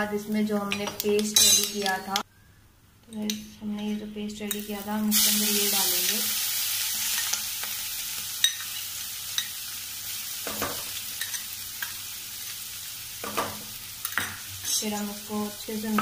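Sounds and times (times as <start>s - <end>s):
paste sizzling in hot oil: 5.1s - 15.8s.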